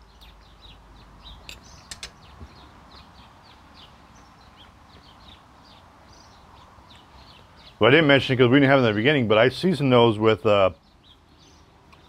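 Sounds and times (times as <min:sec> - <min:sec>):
birds chirping: 0:00.0 - 0:12.0
sharp clicks: 0:01.5 - 0:02.3.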